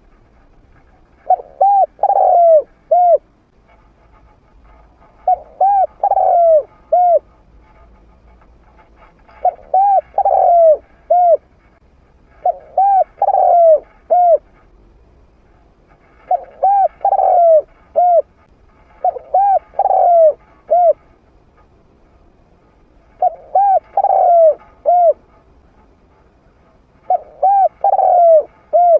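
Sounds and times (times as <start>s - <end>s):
dove cooing: 1.2s - 3.2s, 5.1s - 7.3s, 9.4s - 11.6s, 12.3s - 14.5s, 16.1s - 21.1s, 23.1s - 25.4s, 27.0s - 28.9s.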